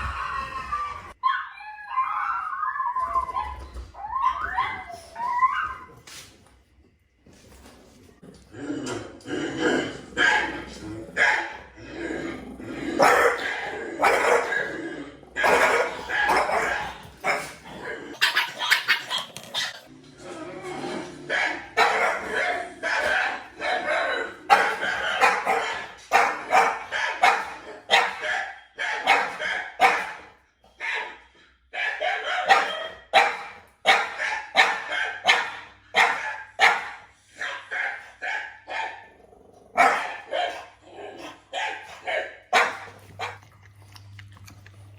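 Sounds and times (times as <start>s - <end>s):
dogs barking: 9.4s - 12.0s, 12.7s - 19.9s, 21.0s - 44.9s.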